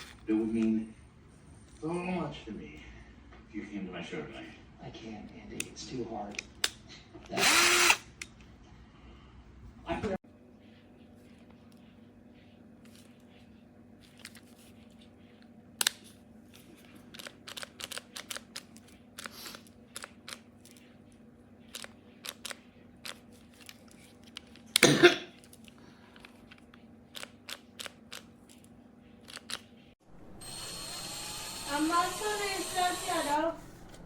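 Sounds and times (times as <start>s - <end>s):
person coughing: 24.8s - 25.4s.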